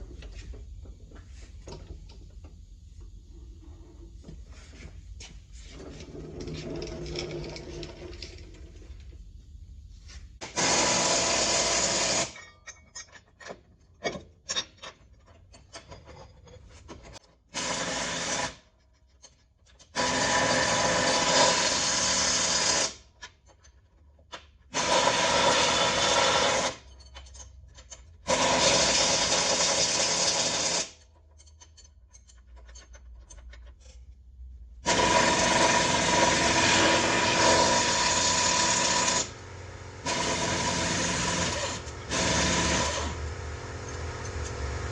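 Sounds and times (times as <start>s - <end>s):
power tool bursts: 10.4s - 12.4s, 17.5s - 18.6s, 28.3s - 31.0s, 34.8s - 44.9s.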